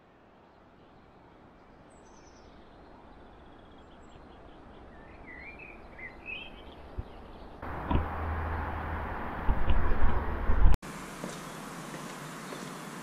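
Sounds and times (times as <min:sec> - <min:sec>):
faint outdoor hiss: 0:00.0 - 0:09.3, 0:10.8 - 0:13.0
songbird warbling chirps: 0:00.7 - 0:07.6.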